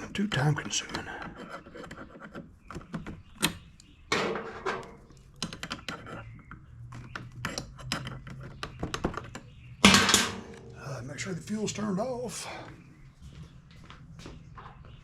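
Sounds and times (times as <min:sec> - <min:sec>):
hand tools clicking and rattling: 0:00.8 - 0:10.8.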